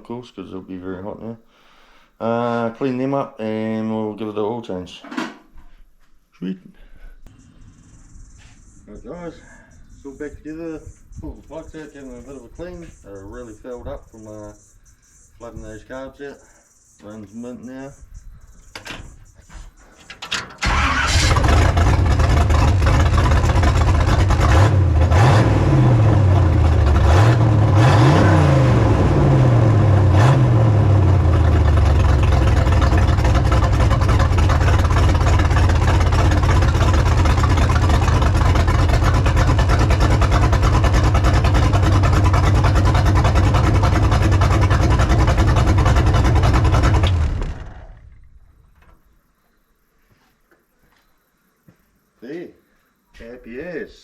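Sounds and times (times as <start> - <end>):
car engine starting revving and idling: 7.3 - 9.1, 20.6 - 48.3.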